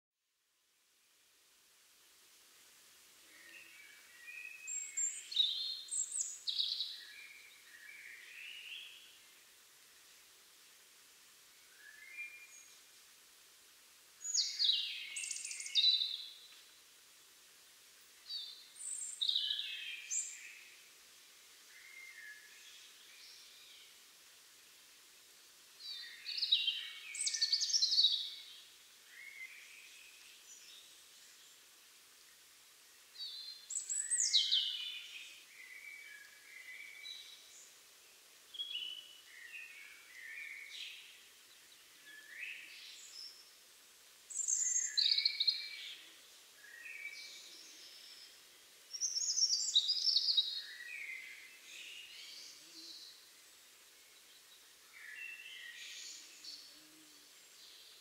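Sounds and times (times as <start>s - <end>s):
robin singing: 3.3s - 9.2s, 14.2s - 16.6s, 18.3s - 20.8s, 25.8s - 31.5s, 33.2s - 37.7s, 38.5s - 43.5s, 44.3s - 53.2s.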